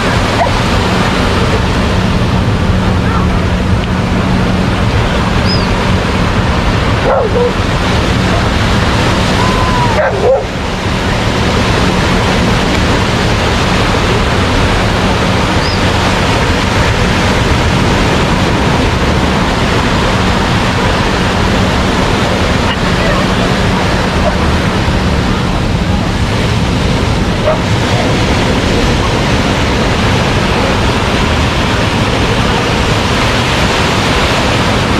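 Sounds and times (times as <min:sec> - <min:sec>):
ocean surf rushing: 0:00.0 - 0:34.9.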